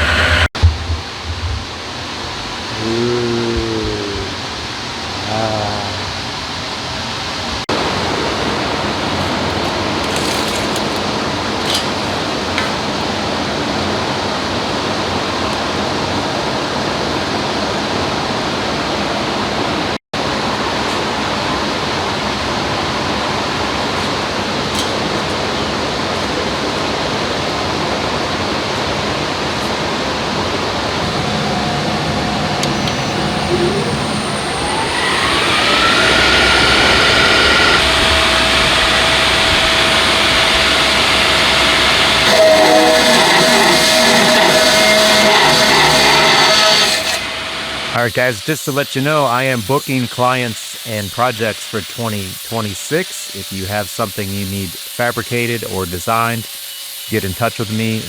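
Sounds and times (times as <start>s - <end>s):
motor whine rising in pitch: 0.0s - 4.6s, 29.6s - 48.0s
shop machinery rushing noise: 0.0s - 4.8s, 7.5s - 16.2s, 20.2s - 58.0s.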